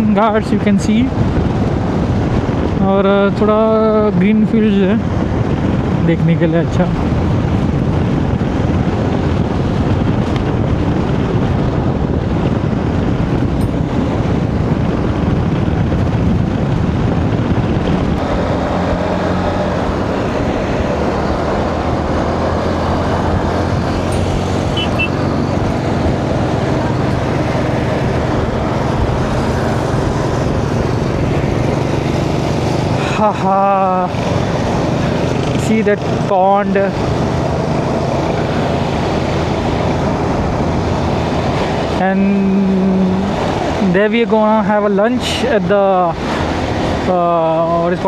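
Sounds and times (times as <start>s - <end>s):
road and wind noise: 0.0s - 48.0s
motorcycle engine running: 7.1s - 41.8s.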